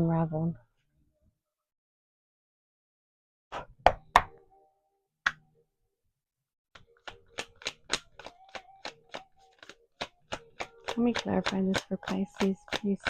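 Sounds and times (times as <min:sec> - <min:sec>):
taps on a hard surface: 0:03.6 - 0:04.3, 0:07.0 - 0:13.0.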